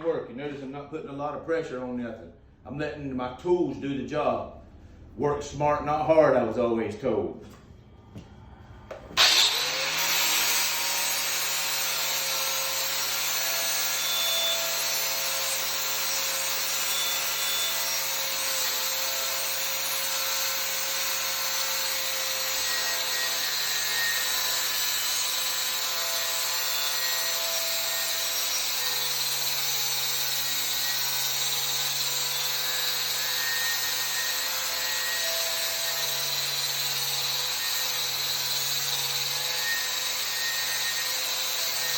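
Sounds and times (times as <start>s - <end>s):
angle grinder grinding metal: 9.2s - 41.9s.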